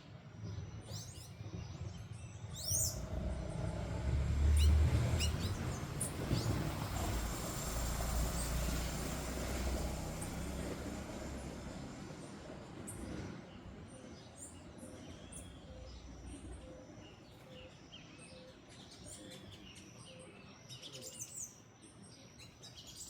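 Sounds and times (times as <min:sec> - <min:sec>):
small birds chirping: 0:00.5 - 0:03.8, 0:04.5 - 0:08.8.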